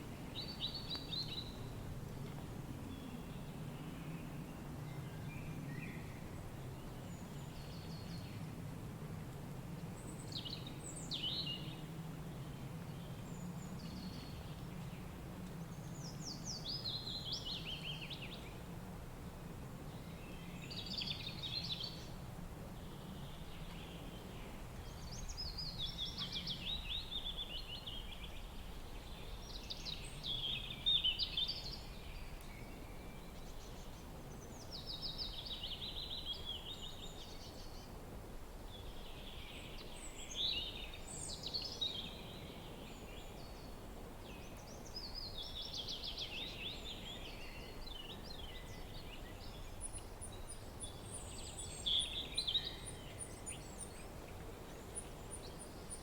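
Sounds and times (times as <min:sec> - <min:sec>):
songbirds singing: 0:00.0 - 0:08.5, 0:10.0 - 0:18.7, 0:19.7 - 0:38.0, 0:38.6 - 0:56.0
low wind rumble: 0:00.0 - 0:56.0.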